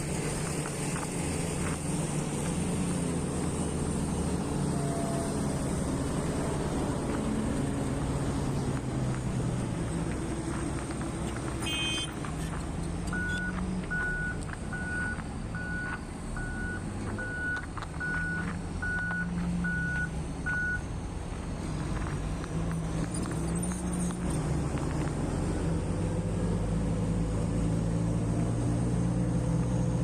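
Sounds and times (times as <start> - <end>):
diesel engine running: 0.0 - 30.0
reversing alarm beeps: 13.2 - 20.8.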